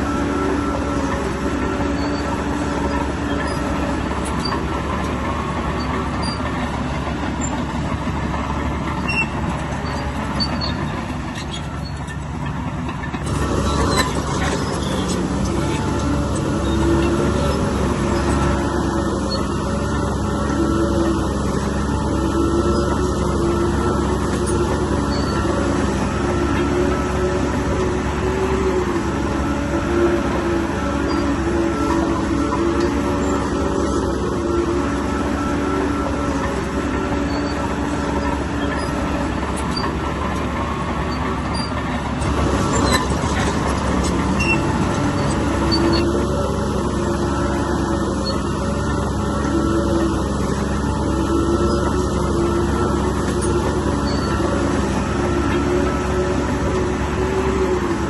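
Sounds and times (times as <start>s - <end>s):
diesel engine of heavy machinery: 0.0s - 58.0s.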